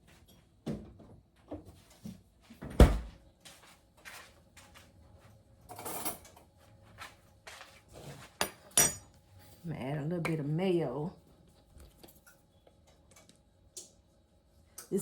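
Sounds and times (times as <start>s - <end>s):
knocks in kitchen: 2.6s - 3.1s.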